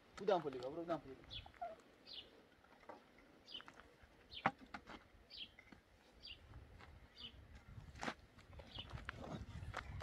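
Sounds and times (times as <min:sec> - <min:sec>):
bird chirping: 0:01.2 - 0:02.4, 0:05.3 - 0:06.4.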